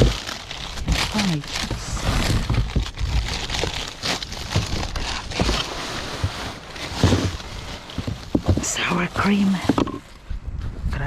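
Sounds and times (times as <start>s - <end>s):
frozen food packages knocking: 0.0s - 10.0s
plastic packaging rustling: 0.0s - 10.2s.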